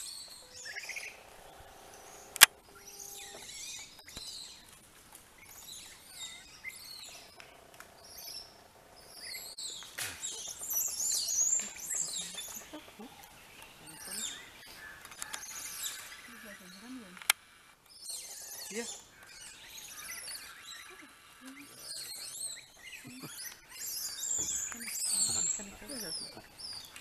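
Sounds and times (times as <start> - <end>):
songbirds chirping and twittering: 0.0 - 27.0.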